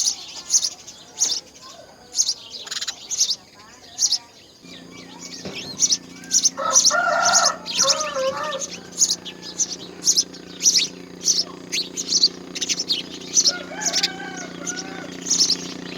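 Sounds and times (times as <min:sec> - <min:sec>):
birds chirping: 0:00.0 - 0:15.9
lower bird call with bending pitch: 0:04.6 - 0:15.9
steady low hum: 0:04.6 - 0:15.9.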